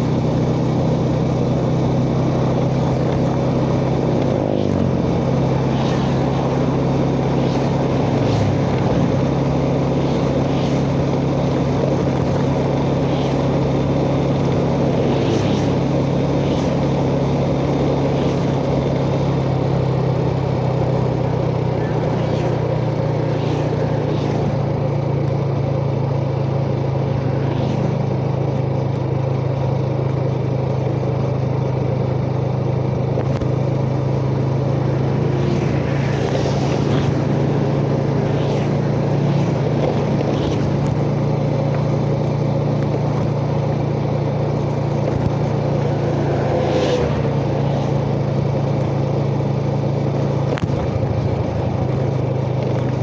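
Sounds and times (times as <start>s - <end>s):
motorcycle engine running: 0.0s - 53.0s
hissing swells: 25.8s - 28.6s, 34.1s - 41.6s, 44.7s - 49.5s.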